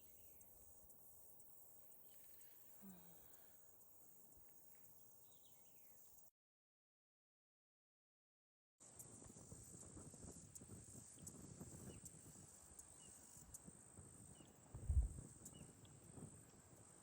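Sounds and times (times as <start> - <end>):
faint chirps: 0.0 - 6.3
insect chorus: 0.0 - 6.3, 9.0 - 17.0
low irregular rumbling: 14.8 - 15.2
low thump: 14.8 - 15.2.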